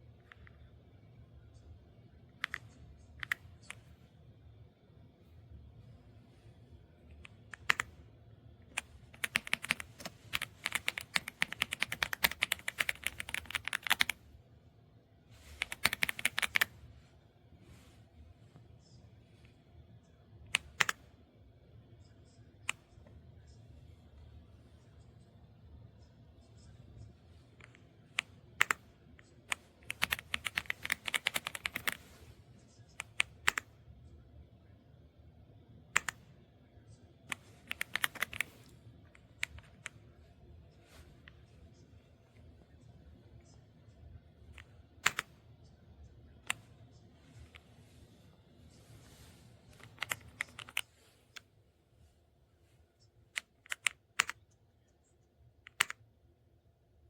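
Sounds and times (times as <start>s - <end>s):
mechanical keyboard typing: 7.6s - 7.9s, 8.7s - 14.2s, 15.6s - 16.7s, 20.6s - 21.0s, 28.6s - 28.8s, 29.5s - 32.0s, 33.0s - 33.7s, 36.0s - 36.2s, 37.3s - 38.7s, 44.6s - 45.3s, 49.8s - 50.8s, 53.4s - 54.4s, 55.7s - 56.0s.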